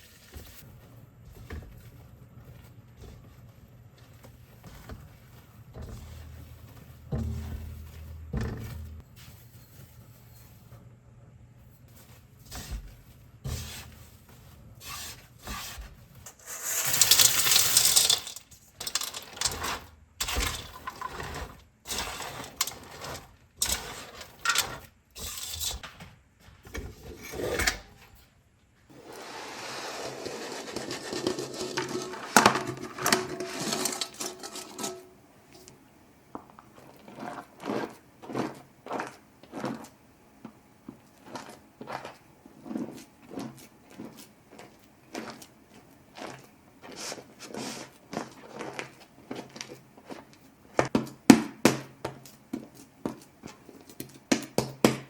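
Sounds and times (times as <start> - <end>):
dishes and utensils clinking: 30.7 - 35.2.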